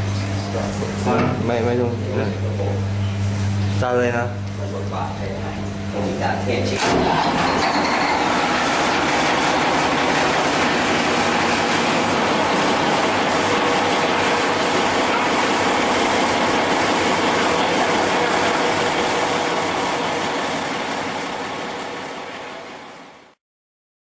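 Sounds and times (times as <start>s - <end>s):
diesel engine running loudly: 6.9s - 22.7s.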